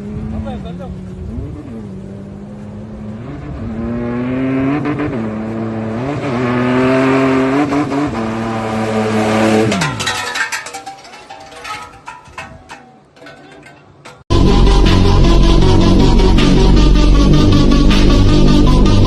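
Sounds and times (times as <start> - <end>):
car engine accelerating: 0.0 - 9.8, 14.3 - 19.0
clicks and knocks: 9.6 - 14.3.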